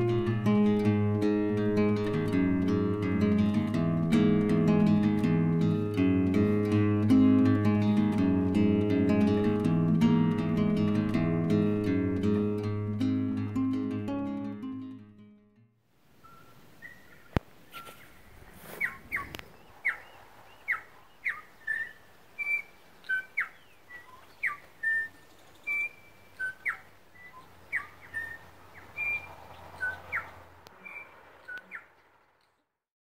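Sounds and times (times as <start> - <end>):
bird chirping and whistling: 16.2 - 17.2, 18.7 - 31.9.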